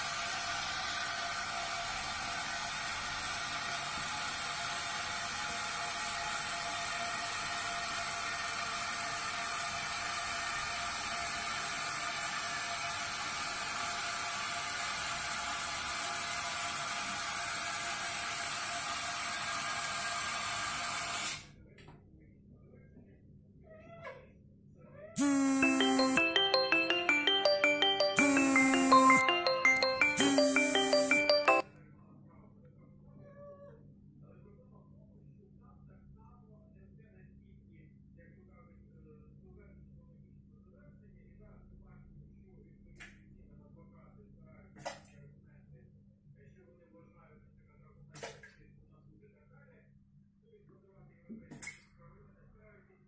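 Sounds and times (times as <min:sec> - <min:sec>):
faint cat meow: 0:23.6 - 0:24.3, 0:33.1 - 0:33.8.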